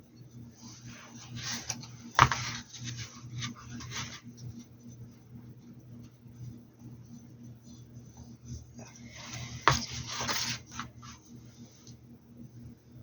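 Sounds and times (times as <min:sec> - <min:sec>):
steady low hum: 0:00.0 - 0:13.0
objects rubbing and scraping: 0:00.6 - 0:04.3, 0:08.5 - 0:11.2.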